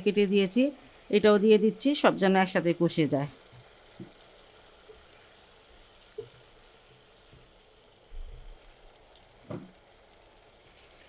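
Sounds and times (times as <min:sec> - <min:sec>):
masala sizzling in pan: 0:00.0 - 0:11.0
soft low thump: 0:09.5 - 0:09.8.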